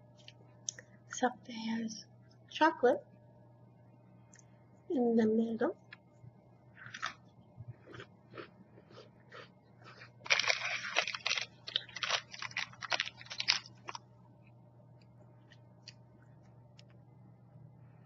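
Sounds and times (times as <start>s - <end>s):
cookie crunching: 6.8s - 14.1s.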